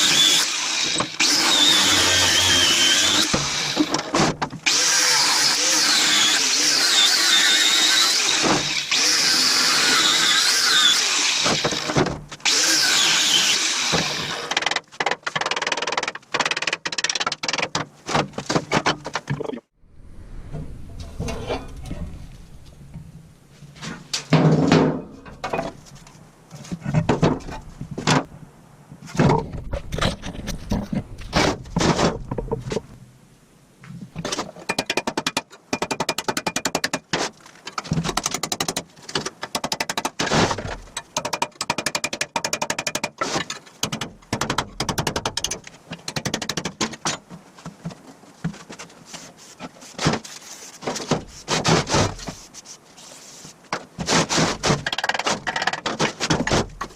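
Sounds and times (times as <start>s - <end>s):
knocks and clatters on metal: 24.2s - 25.8s, 53.7s - 56.9s.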